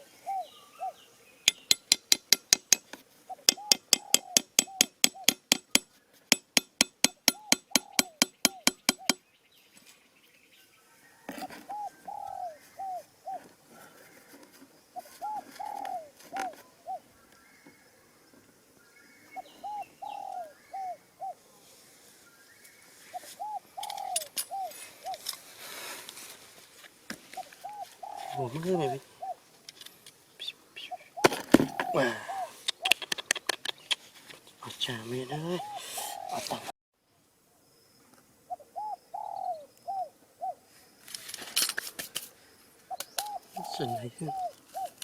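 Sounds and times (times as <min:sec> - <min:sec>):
pigeon cooing: 0:00.0 - 0:01.0, 0:03.3 - 0:05.7, 0:07.1 - 0:09.2, 0:11.7 - 0:14.0, 0:15.0 - 0:17.0, 0:19.4 - 0:21.4, 0:23.2 - 0:25.3, 0:27.4 - 0:29.4, 0:30.4 - 0:34.0, 0:35.3 - 0:36.7, 0:38.5 - 0:40.6, 0:42.9 - 0:45.0
rustling and clicking: 0:41.0 - 0:42.4.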